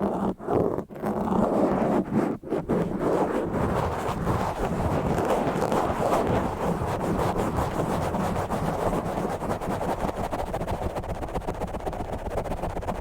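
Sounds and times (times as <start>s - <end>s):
scratching on microphone: 0.0s - 13.0s.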